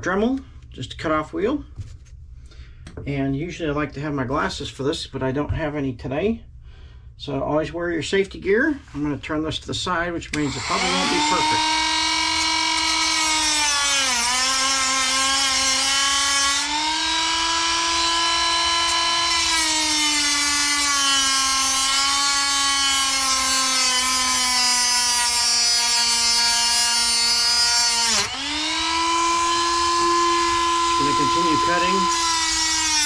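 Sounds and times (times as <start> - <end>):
rotary tool cutting metal: 10.4 - 33.0.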